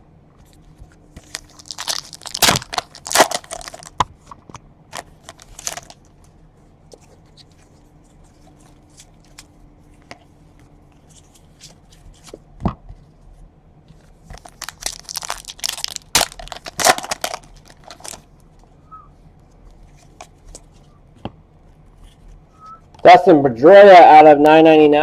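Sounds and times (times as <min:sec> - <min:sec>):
plastic wrapper tearing and crinkling: 0:01.2 - 0:04.0, 0:04.9 - 0:06.2, 0:14.3 - 0:18.3.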